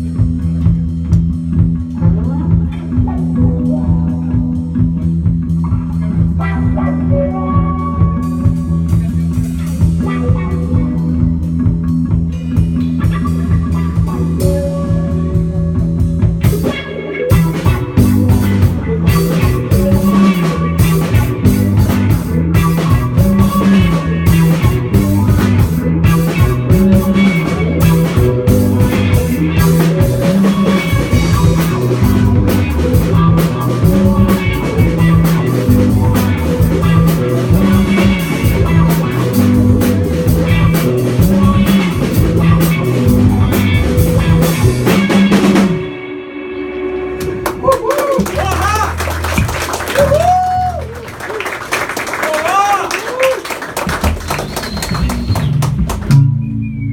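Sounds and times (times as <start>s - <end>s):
drum kit: 0.0s - 46.0s, 47.1s - 56.9s
bass guitar: 0.0s - 56.9s
electric guitar: 0.0s - 56.9s.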